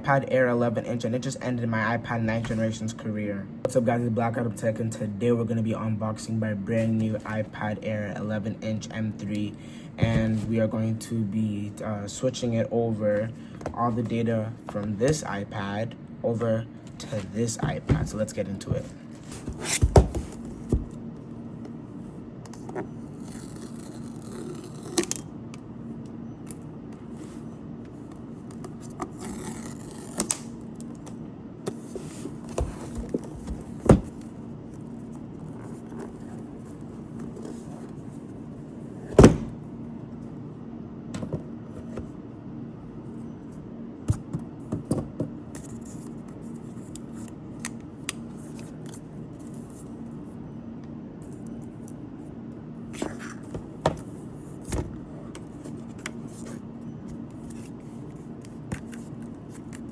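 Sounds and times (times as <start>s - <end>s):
steady low hum: 0.0s - 59.9s
packaging rustling and scraping: 18.8s - 21.0s.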